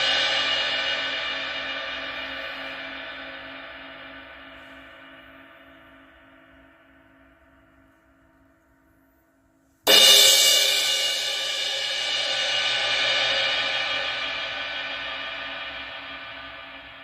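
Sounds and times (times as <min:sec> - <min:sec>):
crash cymbal struck and ringing: 0:09.9 - 0:17.0.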